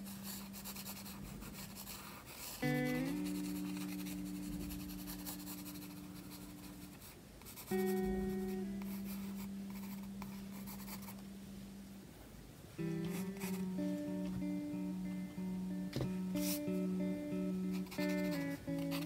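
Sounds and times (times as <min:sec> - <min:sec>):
pencil scratching on paper: 0:00.1 - 0:02.6
gentle background music chords: 0:02.6 - 0:19.0.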